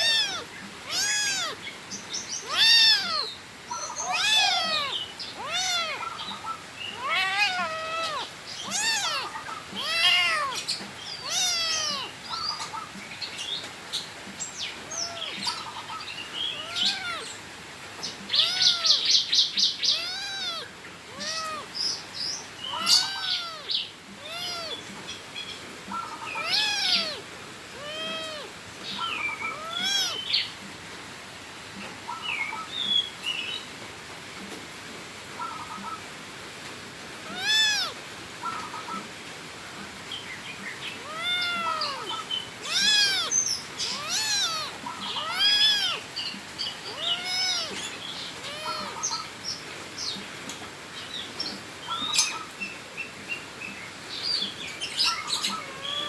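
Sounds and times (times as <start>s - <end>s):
cat meowing: 0.0s - 1.6s, 2.4s - 12.2s, 14.8s - 15.6s, 16.5s - 17.4s, 18.3s - 19.1s, 19.9s - 21.7s, 22.6s - 25.0s, 26.1s - 30.3s, 37.2s - 38.0s, 41.0s - 46.1s, 46.8s - 49.3s, 55.2s - 56.0s
cat trilling: 0.0s - 1.6s, 2.4s - 12.2s, 14.8s - 15.6s, 16.6s - 17.4s, 18.3s - 19.0s, 19.9s - 21.7s, 22.7s - 25.0s, 26.1s - 30.3s, 37.2s - 39.0s, 41.0s - 46.1s, 46.8s - 49.3s, 55.2s - 56.0s.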